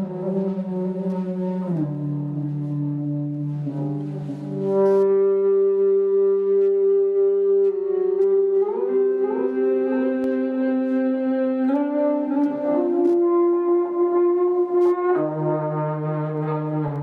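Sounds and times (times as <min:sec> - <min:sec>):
bowed electric guitar sustained notes: 0:00.0 - 0:17.0.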